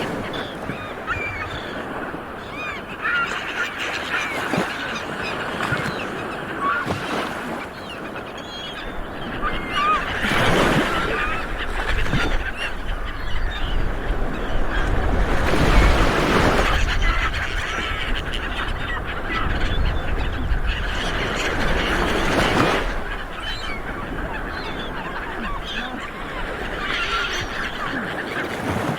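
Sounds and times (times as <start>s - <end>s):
seabirds honking calls: 0.0s - 28.9s.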